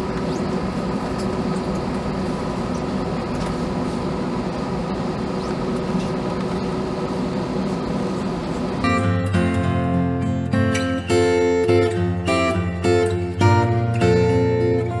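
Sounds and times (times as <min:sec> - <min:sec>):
aircraft cabin hum: 0:00.0 - 0:09.1.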